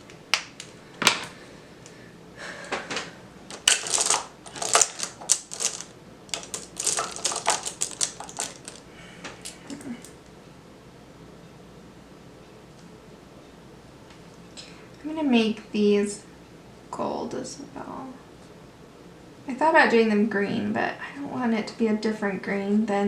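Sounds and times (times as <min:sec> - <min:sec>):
pencils clicking and tapping on paper: 0:03.5 - 0:08.8.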